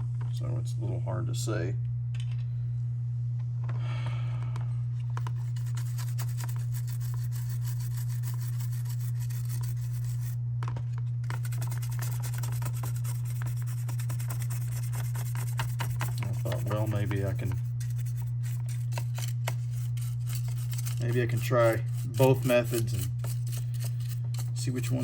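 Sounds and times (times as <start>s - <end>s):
steady low hum: 0.0s - 25.0s
scratchy scrubbing of plastic parts: 5.0s - 10.4s, 11.0s - 25.0s.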